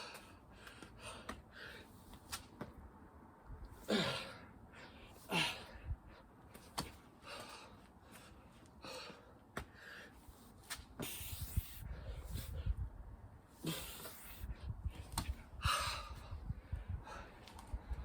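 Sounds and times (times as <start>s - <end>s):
person breathing hard: 7.2s - 10.2s, 15.5s - 18.0s.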